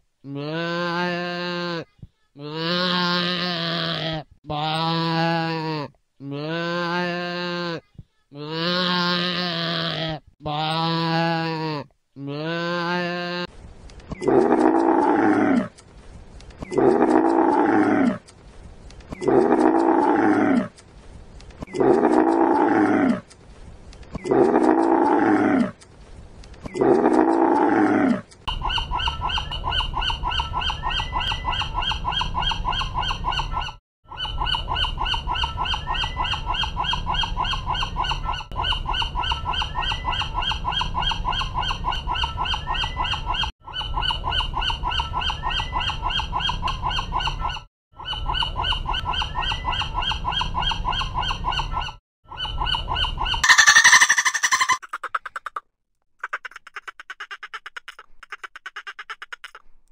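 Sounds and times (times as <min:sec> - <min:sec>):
seagull calls: 0:52.5 - 0:55.4.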